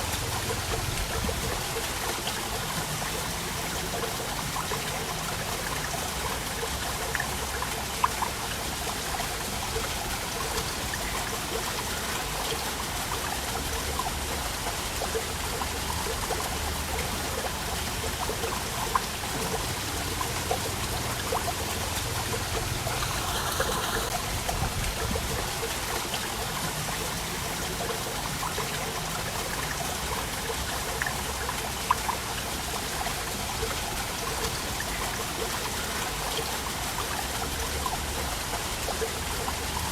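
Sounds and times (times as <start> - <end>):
small waterfall rushing: 0.0 - 39.9
sharp water splashes: 12.8 - 39.9.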